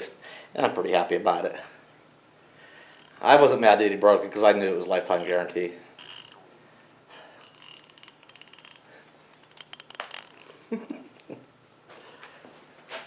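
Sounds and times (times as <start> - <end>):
hand tools handling: 2.8 - 3.5, 4.9 - 6.4, 7.4 - 10.6
rapid even ratchet clicks: 2.9 - 3.6, 5.0 - 6.4, 7.4 - 10.6.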